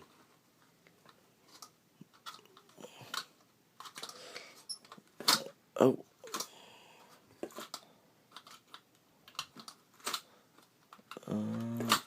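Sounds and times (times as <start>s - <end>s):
man talking: 5.8s - 6.1s.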